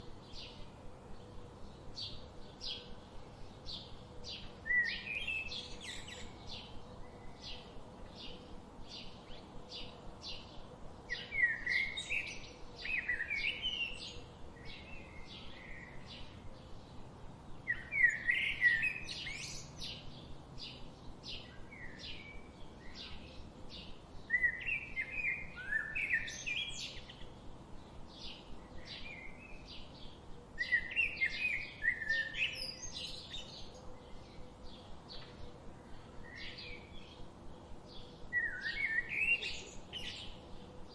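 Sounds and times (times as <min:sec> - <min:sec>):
bird warbling song: 0:03.6 - 0:17.0, 0:17.6 - 0:40.9.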